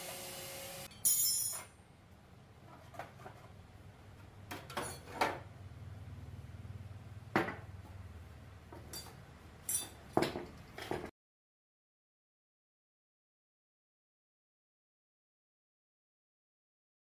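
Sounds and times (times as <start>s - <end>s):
metal tools clinking: 0.9s - 1.8s, 8.8s - 10.3s.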